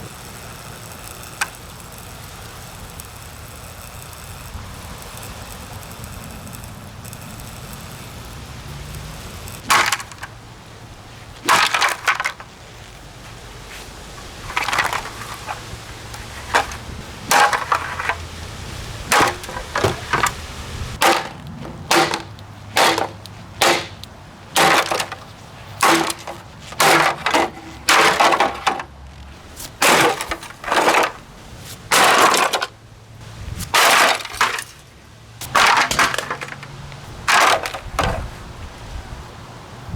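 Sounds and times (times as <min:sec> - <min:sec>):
plastic housing smashed with blows: 0:09.6 - 0:10.4, 0:11.4 - 0:12.5, 0:14.4 - 0:15.7, 0:16.4 - 0:18.3, 0:19.0 - 0:20.4, 0:21.0 - 0:28.9, 0:29.6 - 0:32.8, 0:33.6 - 0:38.4.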